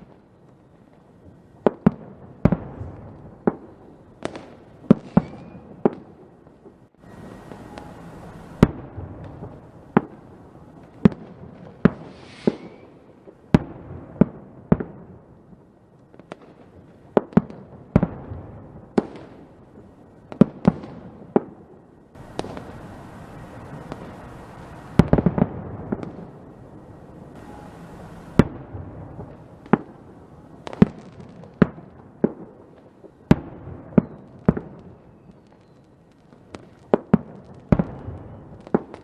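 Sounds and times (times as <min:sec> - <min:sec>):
crackling bangs: 0:00.0 - 0:39.0
fireworks bangs: 0:00.0 - 0:39.0
rising whistle-like hiss: 0:05.0 - 0:05.8, 0:07.0 - 0:08.6, 0:12.0 - 0:13.1, 0:27.4 - 0:28.4
steady hiss: 0:06.9 - 0:08.6, 0:11.8 - 0:13.5, 0:22.0 - 0:33.3.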